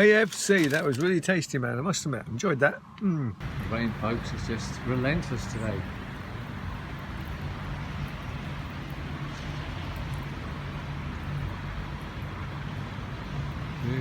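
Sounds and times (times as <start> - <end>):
heavy rain hiss: 3.4 - 14.0.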